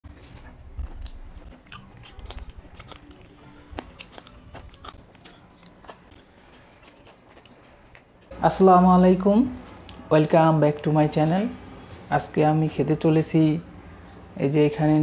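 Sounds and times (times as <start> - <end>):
man chewing food: 0.1 - 8.3.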